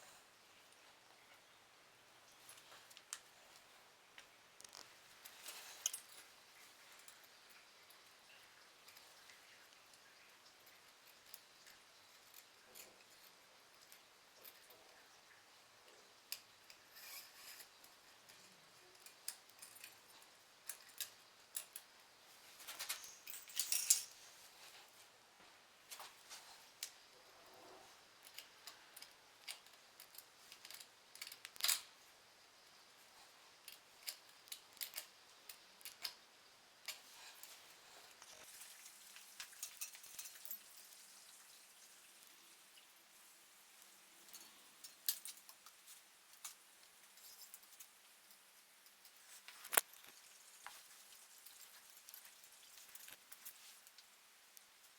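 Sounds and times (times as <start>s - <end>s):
small metal parts clicking: 4.6s - 6.3s, 16.3s - 21.9s, 22.6s - 24.2s, 28.2s - 32.0s, 33.5s - 41.0s, 44.2s - 54.1s.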